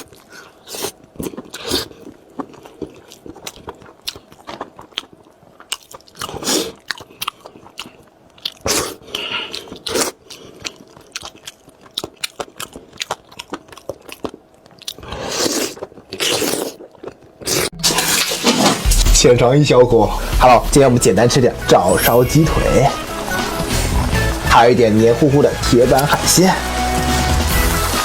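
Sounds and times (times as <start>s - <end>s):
crunching and chewing food: 0.0s - 18.9s.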